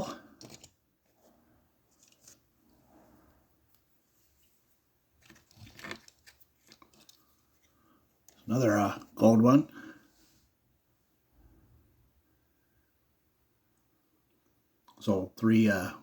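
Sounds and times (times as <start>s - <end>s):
toy cars clicking and rustling: 0.0s - 1.2s, 5.2s - 8.5s.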